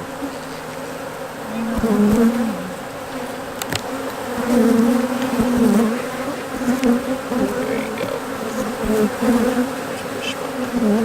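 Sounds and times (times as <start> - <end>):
bee humming close by: 0.0 - 11.0
honeybees buzzing: 0.0 - 11.0.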